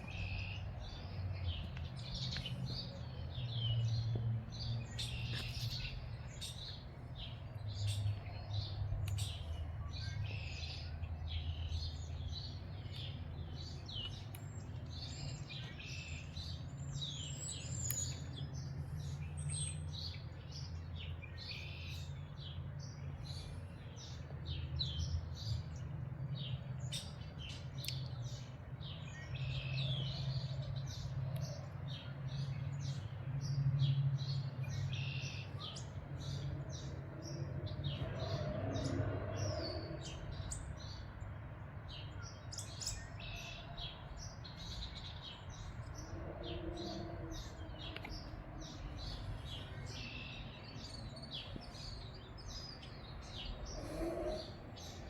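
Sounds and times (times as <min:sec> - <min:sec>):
birds chirping and singing: 0:00.0 - 0:55.0.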